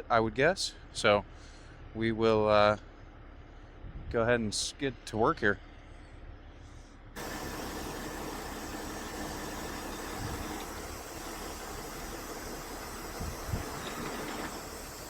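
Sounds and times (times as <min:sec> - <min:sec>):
diesel engine idling: 0:07.2 - 0:15.0
steady hiss: 0:07.2 - 0:15.0.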